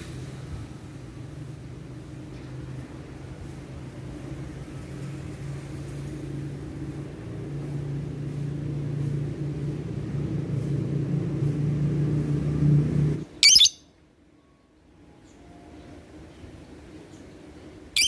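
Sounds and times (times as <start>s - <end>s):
songbird chirp: 13.4s - 13.8s.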